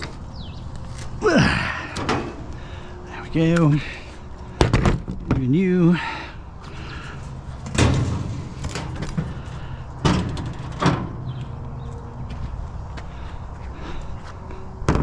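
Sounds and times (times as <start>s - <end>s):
heavy objects banging: 6.7s - 11.6s.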